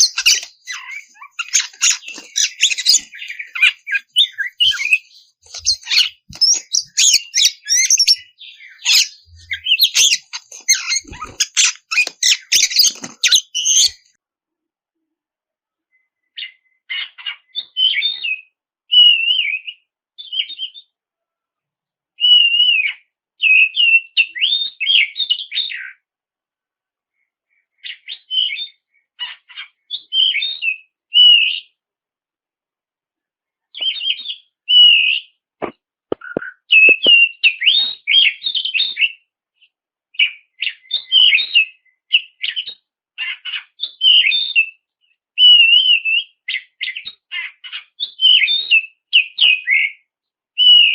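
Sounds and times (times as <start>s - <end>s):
bird singing whistles: 0.0s - 14.1s, 33.8s - 35.3s, 36.3s - 39.2s, 45.4s - 47.2s, 48.0s - 50.0s, 50.6s - 50.9s.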